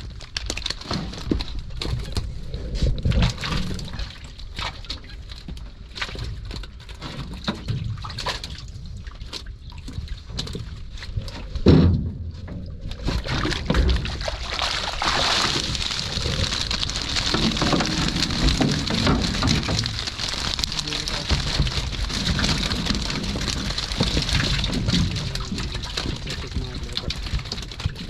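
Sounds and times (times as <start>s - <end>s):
water splashing and pattering: 13.1s - 28.0s
loud water splash: 13.4s - 26.3s.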